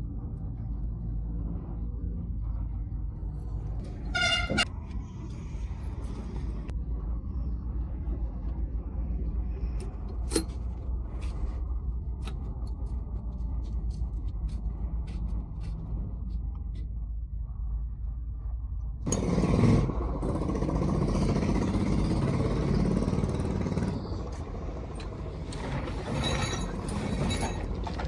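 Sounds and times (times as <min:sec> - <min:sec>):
steady low rumble: 0:00.0 - 0:28.0
vehicle horn: 0:04.1 - 0:04.6.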